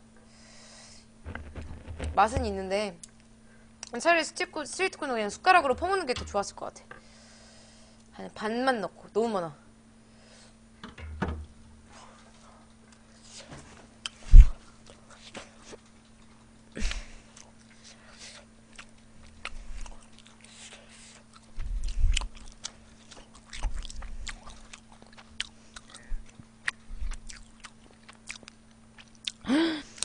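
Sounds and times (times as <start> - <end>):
faint low hum: 0.0 - 30.0
wet chewing and biting: 17.3 - 29.4
mouth clicks and smacks: 21.4 - 29.4.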